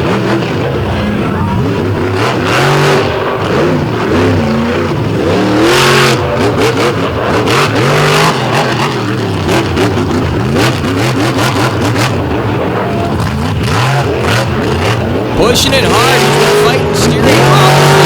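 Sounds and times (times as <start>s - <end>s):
monster truck engine revving: 0.0s - 18.0s.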